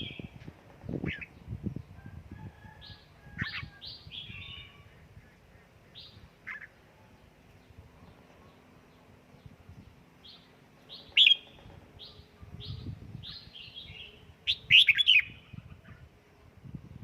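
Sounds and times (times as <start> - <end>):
bird chirping: 3.4 - 16.1.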